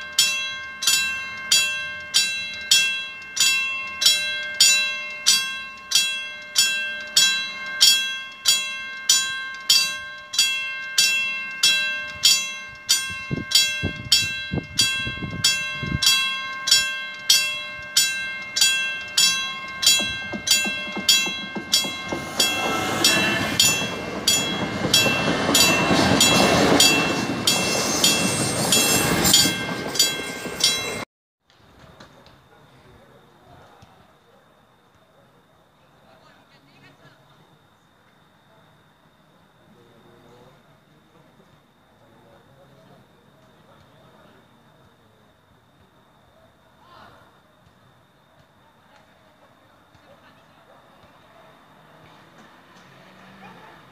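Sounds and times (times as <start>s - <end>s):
passenger train passing: 0.0s - 31.0s, 51.5s - 53.9s
level crossing warning bell: 0.0s - 31.1s, 51.6s - 53.9s.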